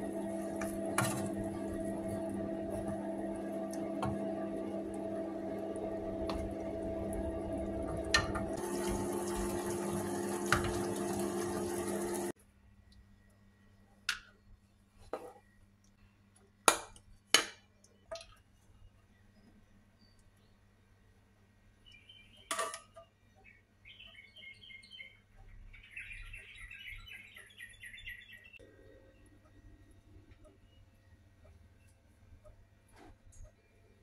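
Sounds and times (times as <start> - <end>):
chicken wings sizzling: 0.0 - 12.4
steady hum: 0.0 - 12.4.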